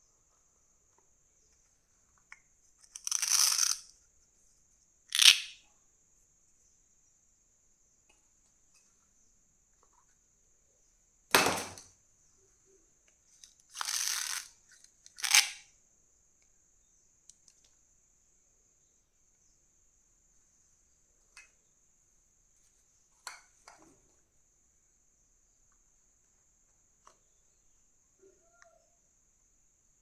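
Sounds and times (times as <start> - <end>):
small plastic clicks: 2.3 - 3.9, 5.1 - 5.6, 13.4 - 15.6
packaging sharp crack: 5.1 - 5.6, 11.3 - 11.9, 15.1 - 15.6.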